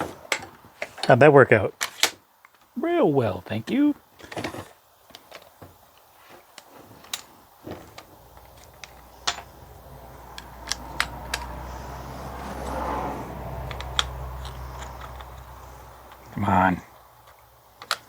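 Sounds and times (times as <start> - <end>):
clicks and knocks of tools: 4.2 - 12.9, 13.6 - 16.4, 17.2 - 18.0
low machine hum: 8.0 - 17.2.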